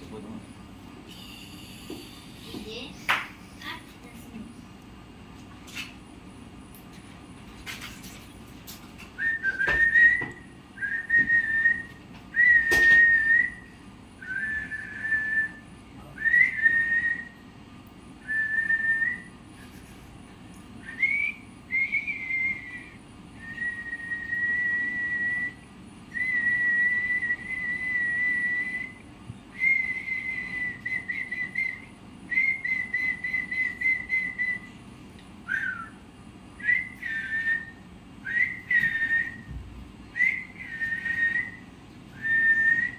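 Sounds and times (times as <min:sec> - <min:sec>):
parrot whistling: 0:29.6 - 0:34.7, 0:40.1 - 0:41.6.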